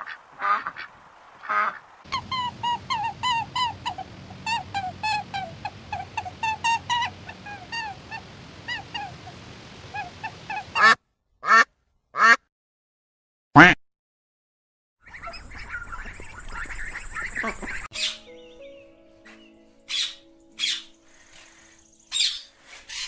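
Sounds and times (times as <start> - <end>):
bird chirping: 2.1 - 10.8, 15.0 - 23.0
goose honks: 13.6 - 13.8.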